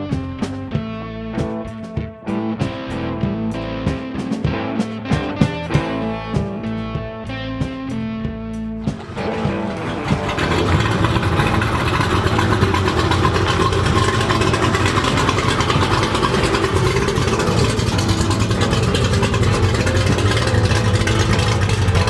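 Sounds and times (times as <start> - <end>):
car engine rumbling: 5.6 - 22.0.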